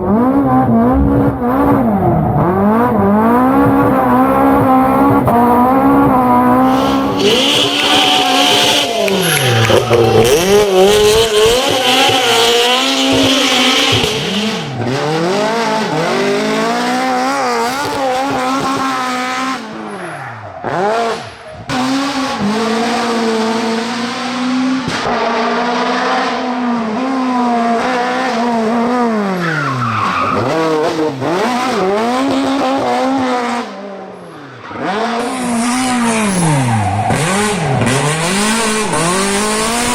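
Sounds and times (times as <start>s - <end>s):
rally car engine revving: 0.0s - 39.9s
tyres squealing: 7.2s - 14.1s.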